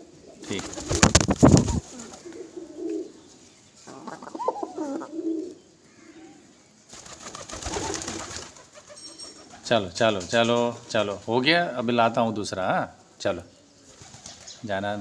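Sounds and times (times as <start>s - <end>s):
pigeons cooing: 0.0s - 9.8s.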